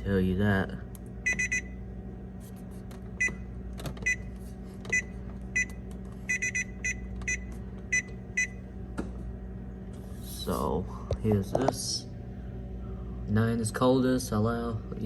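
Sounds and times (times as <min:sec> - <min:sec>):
steady low hum: 0:00.0 - 0:15.0
control panel beeps: 0:01.2 - 0:01.8, 0:03.2 - 0:03.4, 0:04.0 - 0:04.3, 0:04.9 - 0:08.6.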